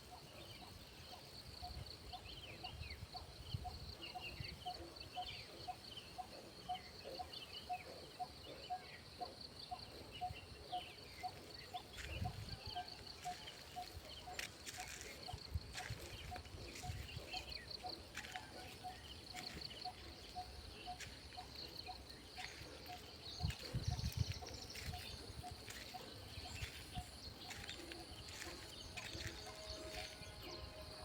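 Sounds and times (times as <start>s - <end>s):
birds chirping: 6.8s - 31.0s.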